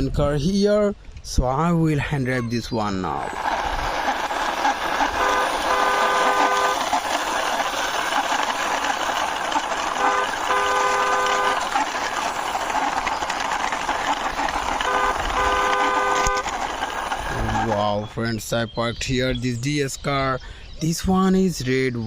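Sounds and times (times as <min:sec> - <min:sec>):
toy car rolling: 0:02.9 - 0:18.5
toy horn tooting: 0:04.9 - 0:07.1, 0:09.8 - 0:12.1, 0:14.6 - 0:17.8.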